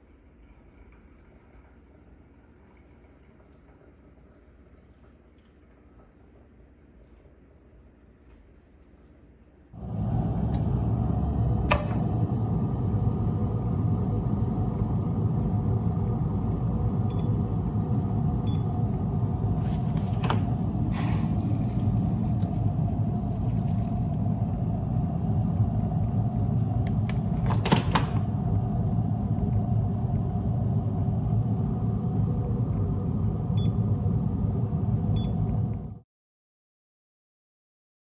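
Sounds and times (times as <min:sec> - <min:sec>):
mechanical rumble: 0:09.8 - 0:36.0.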